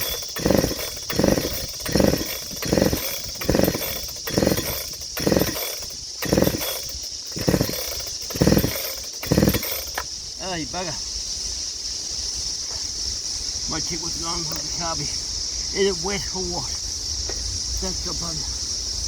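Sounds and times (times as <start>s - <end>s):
chainsaw recoil starter pulls: 0.0s - 10.1s
engine turning over: 0.0s - 10.1s.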